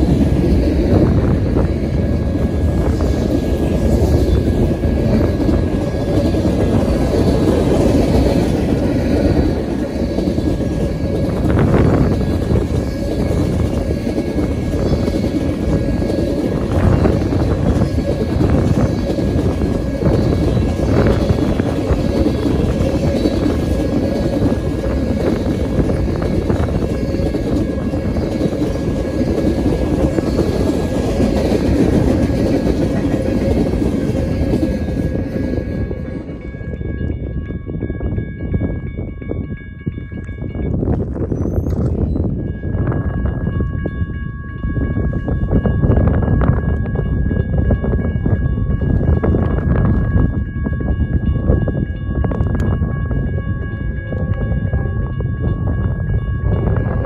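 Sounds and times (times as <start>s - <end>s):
train wheels clattering on rails: 0.0s - 38.2s, 44.8s - 54.6s.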